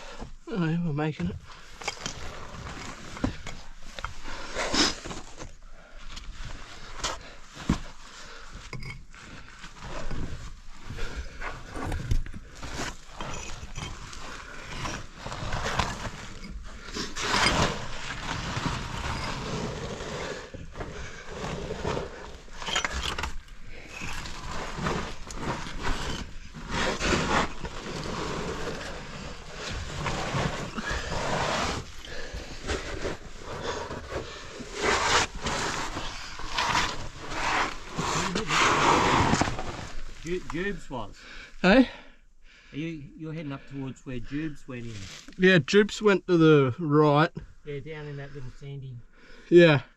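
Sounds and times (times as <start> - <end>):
scraping and knocking against rock: 1.4 - 5.5, 11.1 - 40.7.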